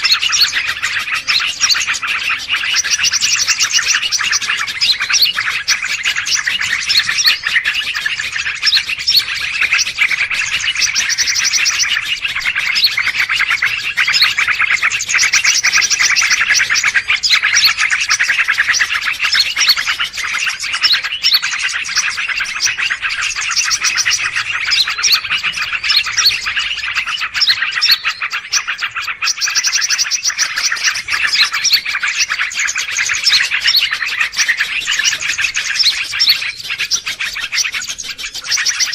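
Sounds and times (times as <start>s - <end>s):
high bird trilling phrase: 0.0s - 38.9s
small birds chirping: 0.0s - 38.9s.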